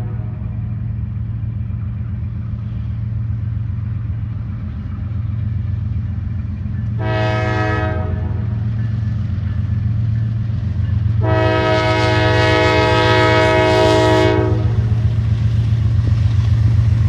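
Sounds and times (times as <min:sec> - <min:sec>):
locomotive horn: 0:00.0 - 0:00.7, 0:07.0 - 0:08.7, 0:11.2 - 0:15.0
diesel locomotives rumbling: 0:00.0 - 0:17.0.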